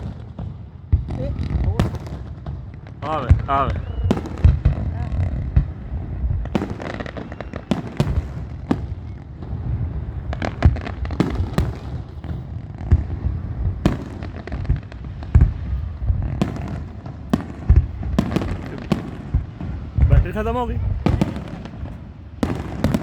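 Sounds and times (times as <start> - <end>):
firework bangs: 0.0 - 23.0
firework crackle: 0.0 - 23.0
low rumble: 3.3 - 6.6, 14.8 - 20.2.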